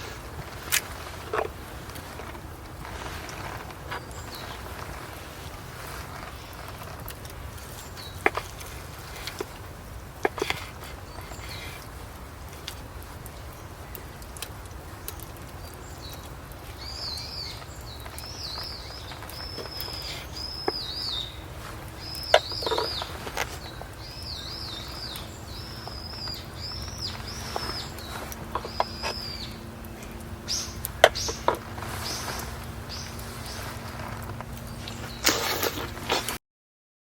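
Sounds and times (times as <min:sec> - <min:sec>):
bird chirping: 0:03.8 - 0:05.2, 0:15.0 - 0:36.3.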